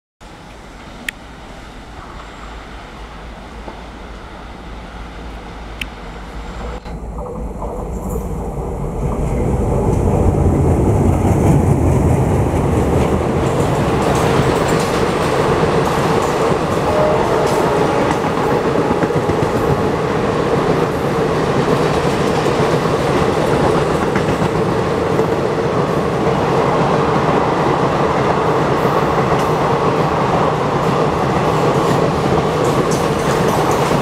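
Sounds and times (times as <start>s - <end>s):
diesel locomotive running: 0.2s - 34.0s
train coaches rolling over rails: 6.1s - 34.0s.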